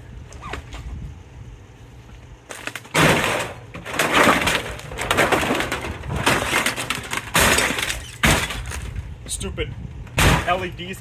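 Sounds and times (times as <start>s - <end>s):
tv parts crunching and cracking: 2.5s - 9.0s.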